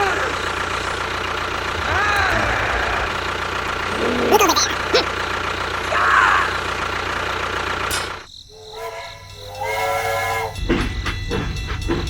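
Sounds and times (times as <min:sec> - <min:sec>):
steady motor: 0:00.0 - 0:09.7
multi-tone horn: 0:08.5 - 0:10.7.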